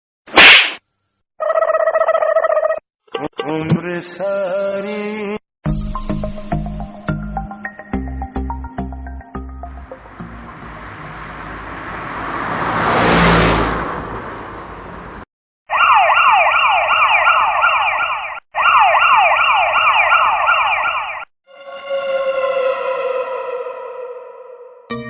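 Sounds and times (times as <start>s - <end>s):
electronic siren sound effect: 15.7s - 25.0s
sustained synthesizer chord: 21.5s - 25.0s.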